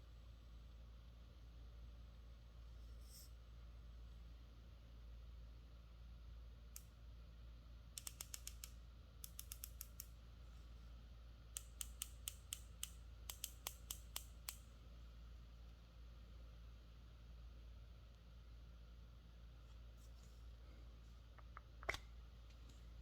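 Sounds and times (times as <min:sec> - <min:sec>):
small mechanism clicking: 0:08.0 - 0:10.2, 0:11.6 - 0:14.7.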